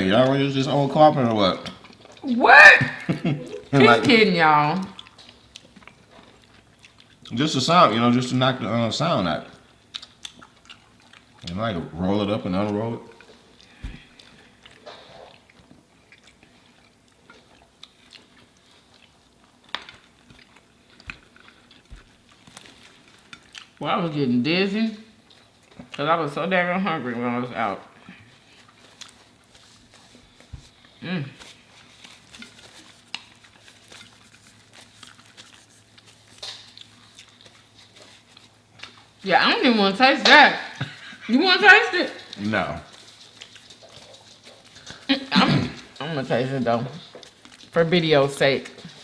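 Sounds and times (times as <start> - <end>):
person chewing food: 0.0 - 2.2, 2.8 - 23.8, 25.1 - 26.0, 27.9 - 39.2, 40.7 - 41.4, 42.1 - 47.8, 48.6 - 49.0
small clicks while eating: 9.9 - 11.7, 12.6 - 23.8.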